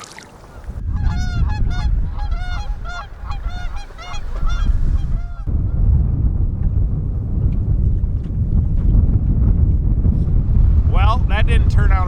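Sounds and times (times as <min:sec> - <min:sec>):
geese honking: 0:00.4 - 0:05.5
wind rumble on microphone: 0:00.4 - 0:12.0.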